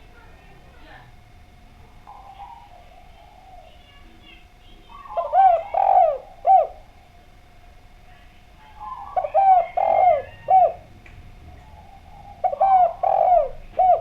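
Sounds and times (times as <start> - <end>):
dove cooing: 1.7 - 7.2, 8.4 - 14.0.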